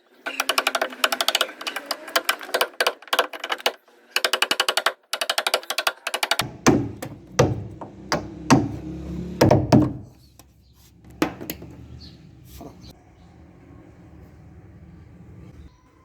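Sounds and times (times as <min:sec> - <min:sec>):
knocks and thunks on wood: 0:06.4 - 0:10.5, 0:11.1 - 0:11.9.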